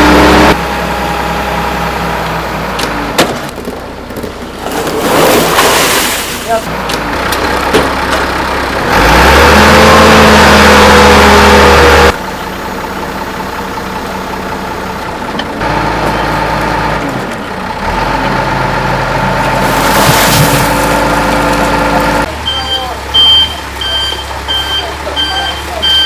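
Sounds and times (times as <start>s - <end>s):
engine humming steadily: 11.5s - 26.0s.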